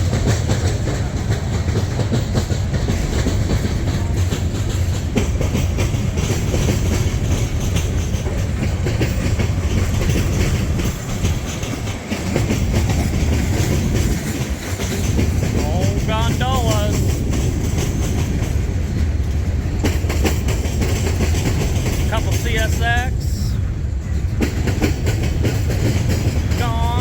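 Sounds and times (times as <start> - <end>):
freight train cars rumbling past: 0.0 - 27.0
wheels clacking over rail joints: 0.0 - 27.0.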